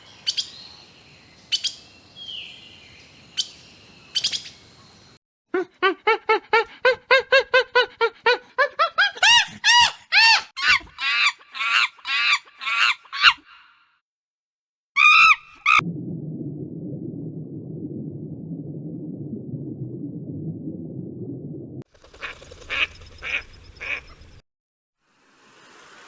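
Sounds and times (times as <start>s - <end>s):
low rumbling noise: 15.8s - 21.8s.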